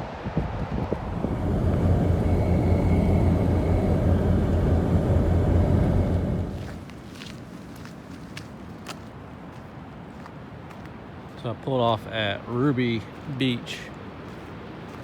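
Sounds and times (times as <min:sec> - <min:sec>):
vehicle engine and road rumble: 0:00.0 - 0:08.4.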